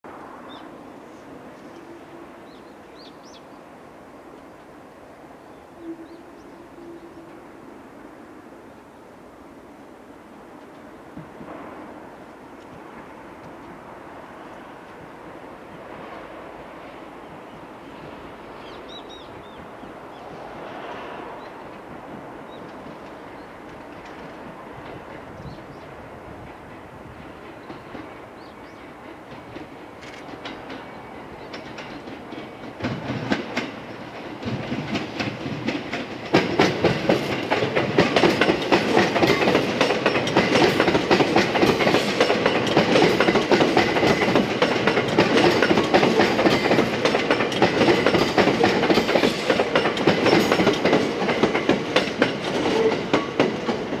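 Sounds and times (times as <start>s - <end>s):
electric train passing: 0.0s - 54.0s
train wheels clattering over rail joints: 21.7s - 54.0s.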